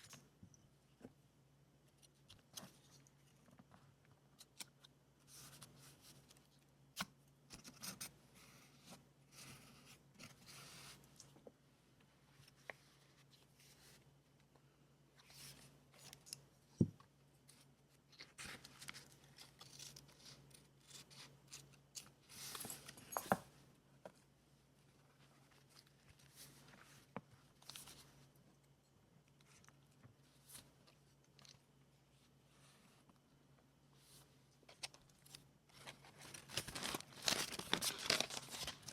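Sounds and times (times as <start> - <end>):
paper rustling and crinkling: 17.5 - 23.4, 25.0 - 28.3, 34.0 - 38.9.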